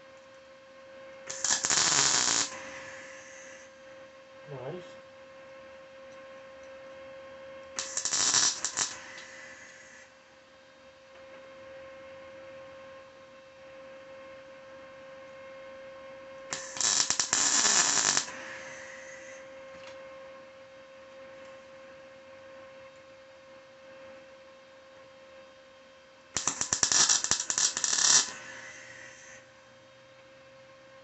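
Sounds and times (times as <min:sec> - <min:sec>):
welding arc crackle: 0:01.3 - 0:03.6, 0:07.8 - 0:10.0, 0:16.5 - 0:19.4, 0:26.4 - 0:29.4.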